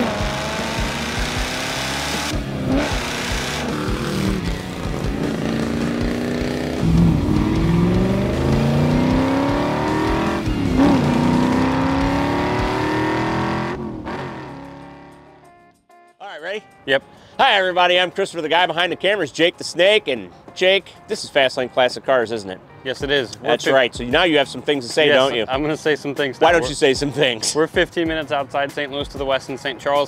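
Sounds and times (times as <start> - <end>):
car engine accelerating hard: 0.0 - 15.3.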